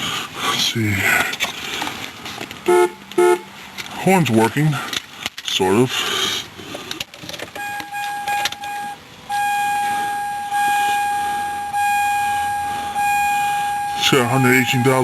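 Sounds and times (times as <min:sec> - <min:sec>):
car warning chime: 0:07.6 - 0:15.0.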